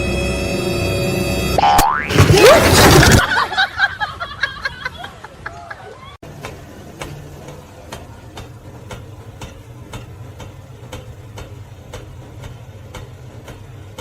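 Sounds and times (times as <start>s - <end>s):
regular sharp ticking: 6.3s - 14.0s.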